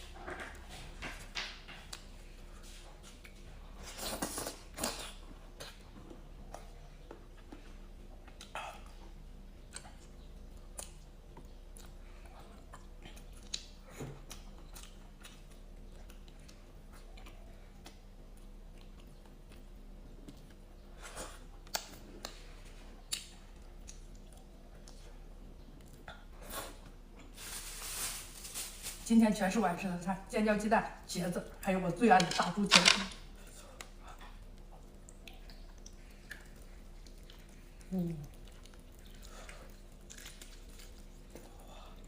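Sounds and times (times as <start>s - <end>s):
chewing with small clicks: 1.8s - 2.2s, 4.8s - 27.0s, 33.4s - 42.0s.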